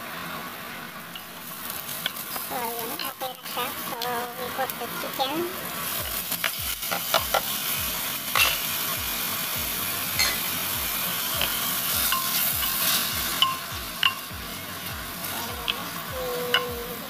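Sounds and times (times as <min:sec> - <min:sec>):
chicken sizzling in a pot: 0:00.0 - 0:17.0.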